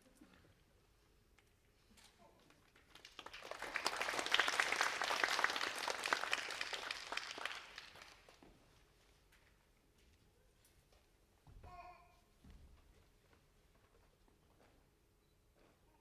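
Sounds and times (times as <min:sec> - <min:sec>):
audience applauding: 0:02.8 - 0:08.4.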